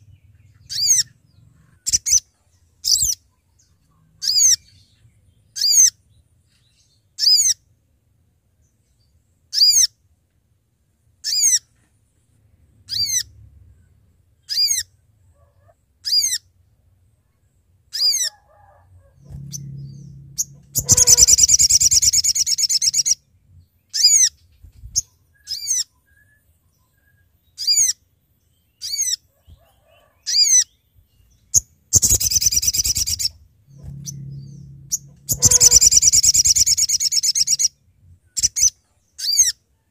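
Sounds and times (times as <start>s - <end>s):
bird fast trill: 19.1s - 23.2s, 31.5s - 39.6s
bird call notes: 19.2s - 23.2s, 32.0s - 37.7s.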